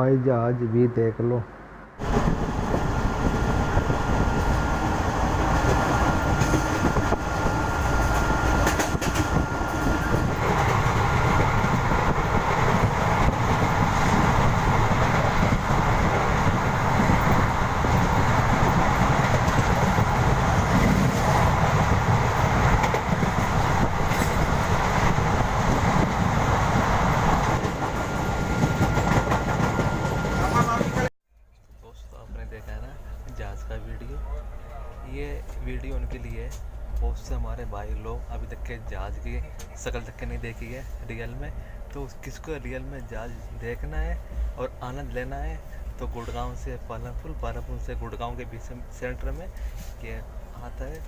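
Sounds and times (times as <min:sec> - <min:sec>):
train wheels on rails: 0:02.0 - 0:31.1.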